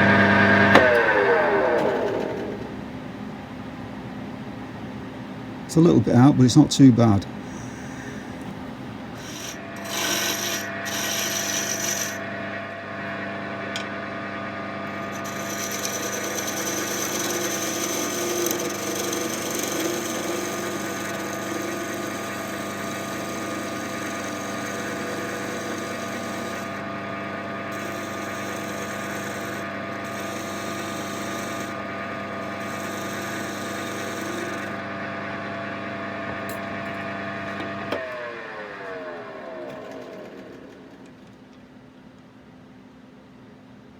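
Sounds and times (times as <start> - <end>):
tool scraping spinning wood: 0.0 - 2.8, 7.4 - 14.2, 14.8 - 34.9, 38.9 - 41.5
wood lathe motor running: 0.0 - 2.8, 7.4 - 41.5.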